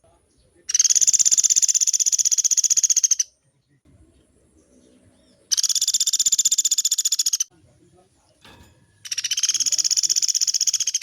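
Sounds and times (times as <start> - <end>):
woodpecker trilling: 0.7 - 3.4, 5.2 - 7.5, 9.0 - 11.0.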